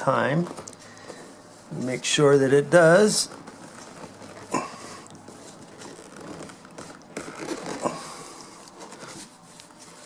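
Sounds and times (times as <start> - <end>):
upholstery cover scraping and rubbing: 0.0 - 10.0.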